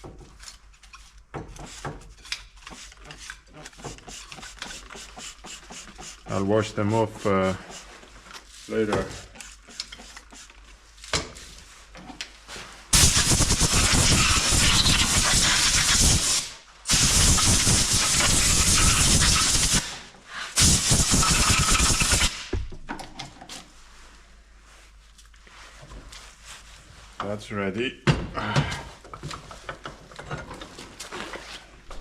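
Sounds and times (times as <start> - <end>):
compressed air hissing: 4.1 - 6.3, 13.0 - 22.5.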